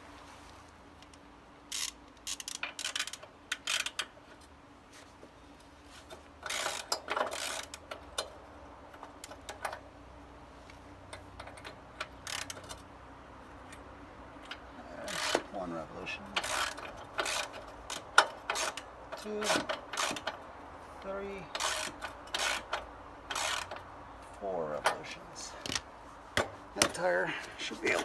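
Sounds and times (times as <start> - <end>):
wrench clicking and clattering: 1.1 - 4.1, 6.4 - 8.3, 11.1 - 12.8, 14.4 - 15.5, 16.4 - 20.4, 21.5 - 23.9, 24.8 - 27.0.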